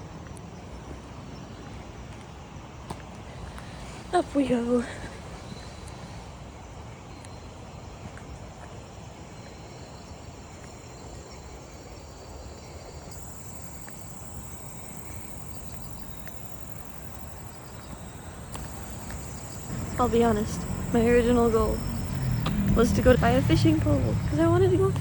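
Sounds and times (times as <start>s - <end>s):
high-pitched insect song: 8.9s - 25.0s
low background rumble: 14.2s - 25.0s.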